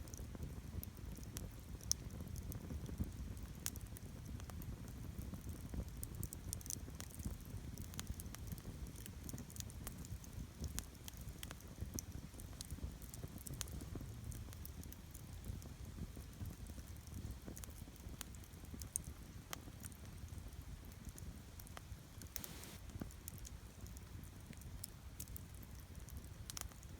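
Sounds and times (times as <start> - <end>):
campfire crackling and popping: 0.1 - 26.9.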